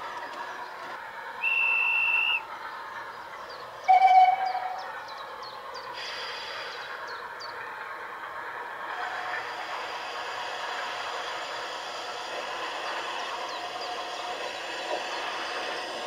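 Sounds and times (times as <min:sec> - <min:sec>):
model train running: 0:00.0 - 0:16.0
model locomotive whistle: 0:01.4 - 0:02.4, 0:03.9 - 0:04.9
bird chirping: 0:03.1 - 0:06.0.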